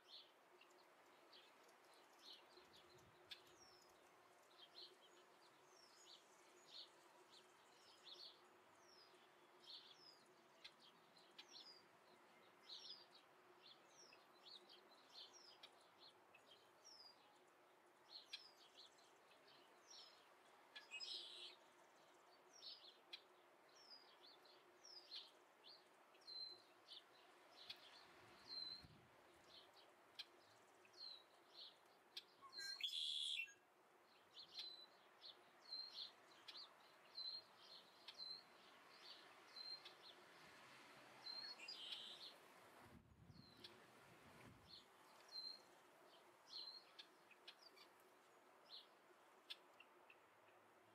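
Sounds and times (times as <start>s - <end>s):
bird chirping: 18.0s - 40.2s, 41.2s - 42.4s, 44.7s - 50.9s.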